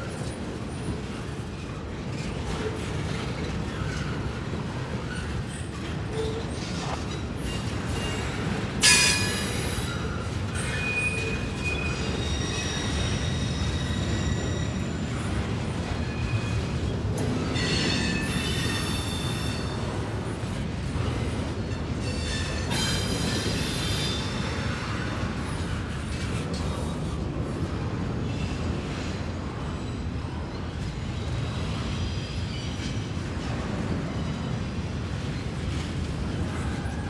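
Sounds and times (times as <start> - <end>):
rumble of train wheels on rail: 0.0 - 37.0
high-pitched metallic squeals: 7.4 - 15.3.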